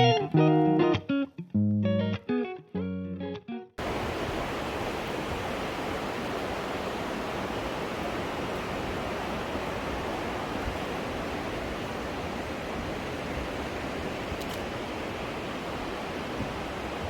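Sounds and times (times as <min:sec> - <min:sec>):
river rushing: 0:03.8 - 0:17.0.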